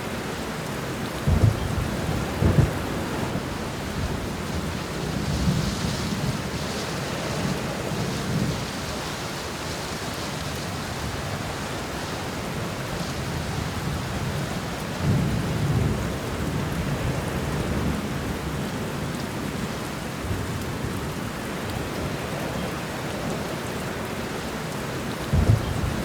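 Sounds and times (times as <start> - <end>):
steady rain: 0.0 - 26.0
thunder rumble: 1.2 - 11.6, 25.3 - 26.0.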